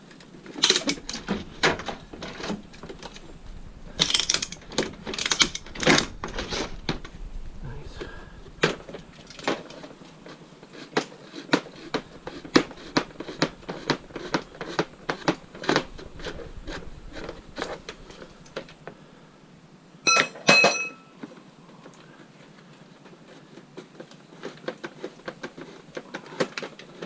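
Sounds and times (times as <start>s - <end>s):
loud ringing metal clangs: 20.1s - 21.2s.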